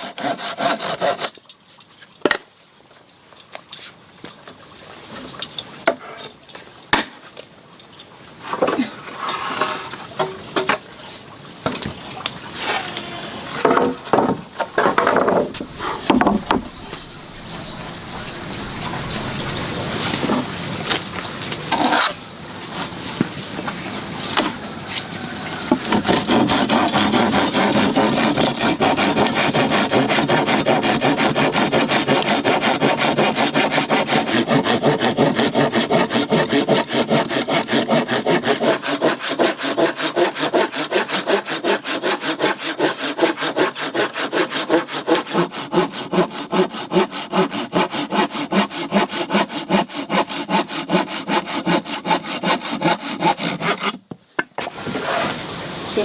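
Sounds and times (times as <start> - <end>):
hand saw cutting wood: 0.0 - 1.4, 13.6 - 21.0, 21.7 - 22.2, 25.7 - 54.0.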